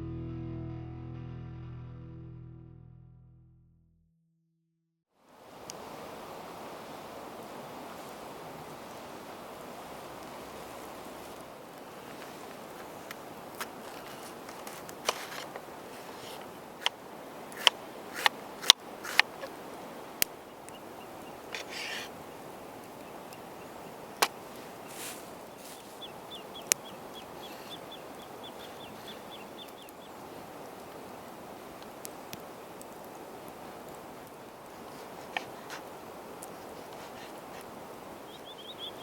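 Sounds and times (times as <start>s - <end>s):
outdoor background noise: 5.1s - 39.0s
sharp clicks and pops: 16.8s - 19.5s
bird trilling: 20.4s - 30.1s, 38.3s - 39.0s.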